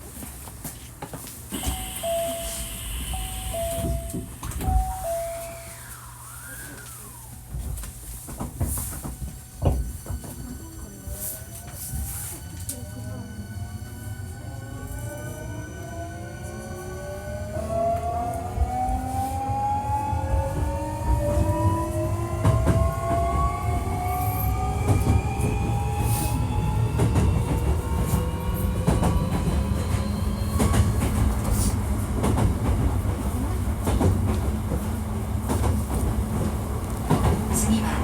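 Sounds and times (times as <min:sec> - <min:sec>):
electric train motor whine: 0:01.6 - 0:08.0
train running gear rumble: 0:17.6 - 0:38.0.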